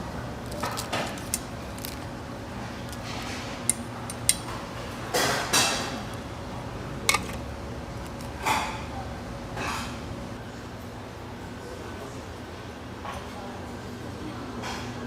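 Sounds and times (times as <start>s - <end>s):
utensils clinking against dishes: 2.9s - 6.1s, 7.0s - 7.4s, 8.2s - 9.0s.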